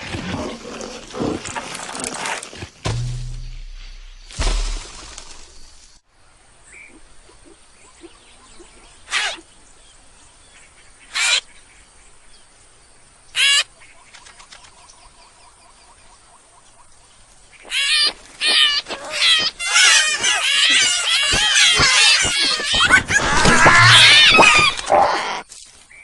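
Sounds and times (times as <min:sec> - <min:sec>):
animal high calls: 0:17.6 - 0:25.4.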